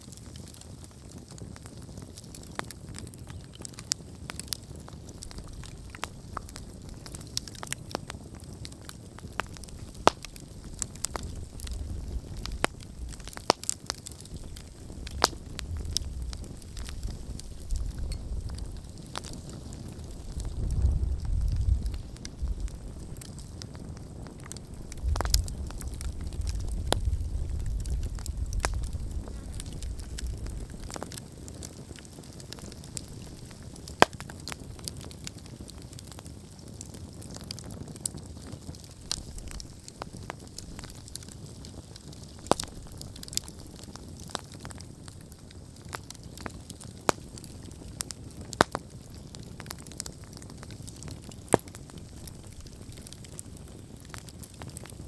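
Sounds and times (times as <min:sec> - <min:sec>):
campfire crackling and popping: 0:00.0 - 0:55.0
low rumble: 0:10.6 - 0:13.4, 0:14.4 - 0:18.9.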